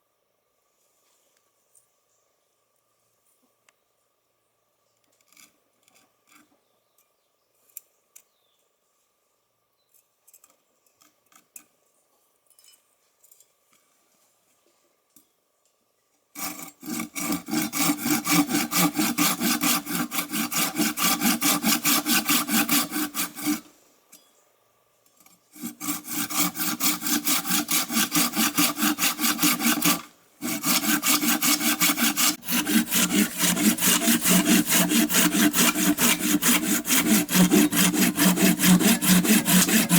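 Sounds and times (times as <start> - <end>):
hand saw cutting wood: 16.4 - 23.8, 25.5 - 39.9.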